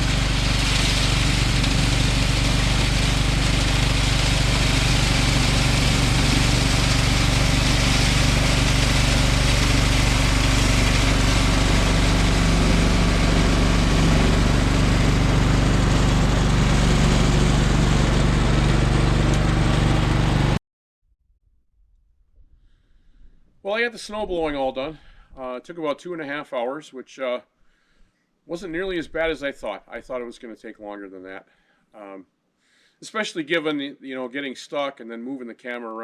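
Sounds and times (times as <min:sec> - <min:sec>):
lawn tractor engine running: 0:00.0 - 0:20.6.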